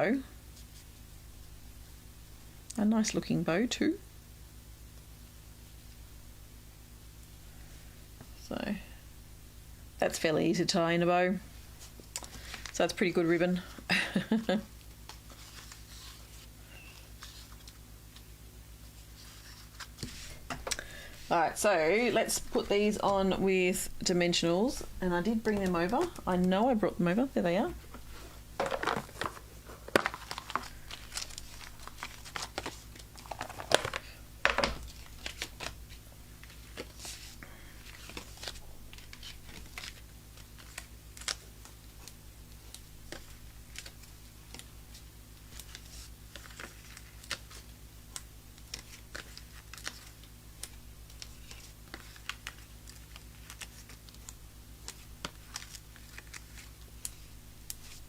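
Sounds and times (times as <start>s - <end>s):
steady low hum: 0.0s - 58.0s
paper crinkling and tearing: 14.9s - 18.3s, 28.8s - 34.1s, 34.8s - 58.0s
crisp ticks of card pieces: 29.0s - 58.0s.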